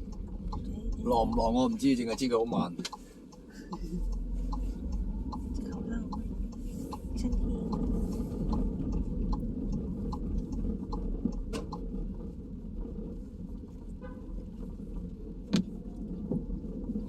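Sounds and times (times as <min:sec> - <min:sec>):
faint regular ticking: 0:00.0 - 0:12.3
car road and engine rumble: 0:00.0 - 0:17.0.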